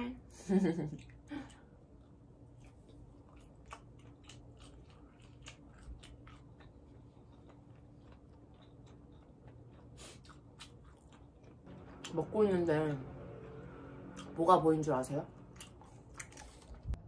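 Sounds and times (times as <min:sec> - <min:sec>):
low steady hum: 0:00.0 - 0:17.0
person chewing food: 0:01.0 - 0:11.7, 0:15.4 - 0:17.0.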